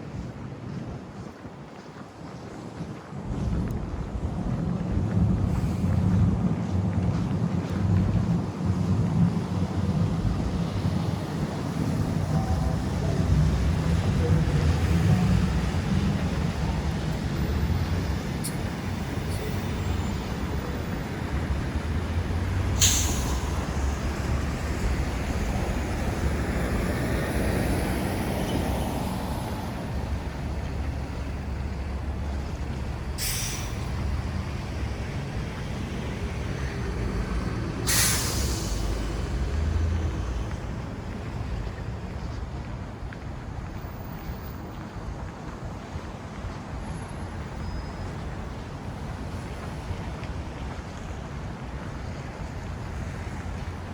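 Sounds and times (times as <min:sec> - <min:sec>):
street traffic: 0:00.0 - 0:53.9
heavy vehicle engine rumbling: 0:04.1 - 0:53.9
air brake hisses: 0:22.7 - 0:24.3, 0:33.2 - 0:34.4, 0:37.8 - 0:39.2.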